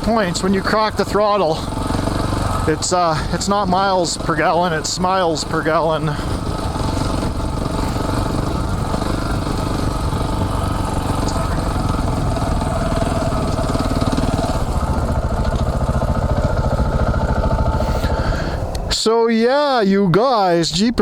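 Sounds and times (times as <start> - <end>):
motorcycle engine running: 0.0 - 18.9.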